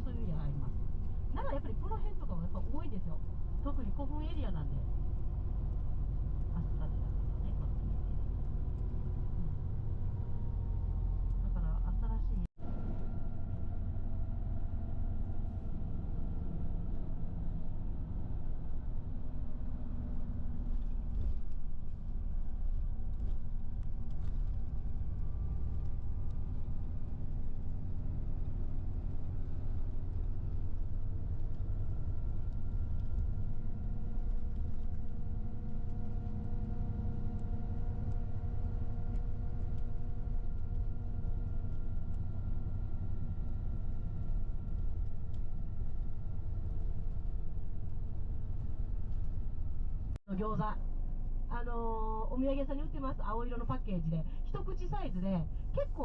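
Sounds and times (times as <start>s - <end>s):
vehicle engine and road rumble: 0.0s - 56.0s.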